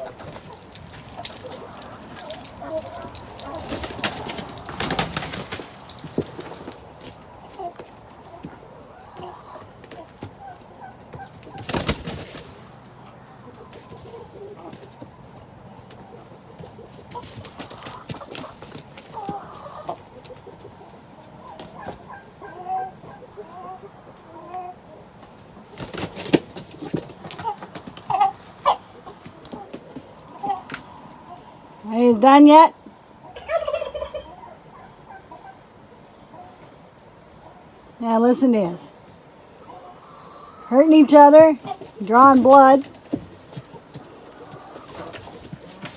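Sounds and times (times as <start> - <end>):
scuffling: 0.0 - 12.7, 41.1 - 45.9
poultry calling: 0.0 - 25.8, 26.8 - 37.9, 39.1 - 45.9
chickens clucking: 0.0 - 45.9.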